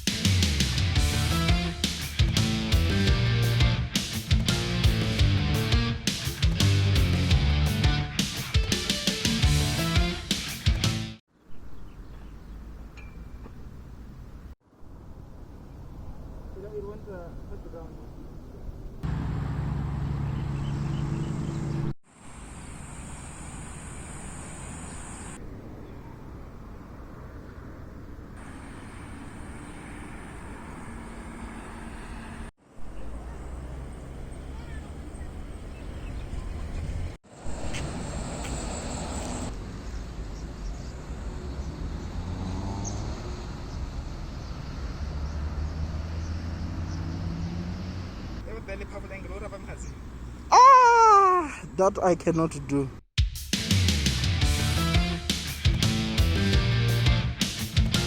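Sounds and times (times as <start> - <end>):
vehicle interior rumble: 18.9 - 22.0
vehicle running noise: 19.0 - 50.5
hiss with high whine: 22.2 - 25.4.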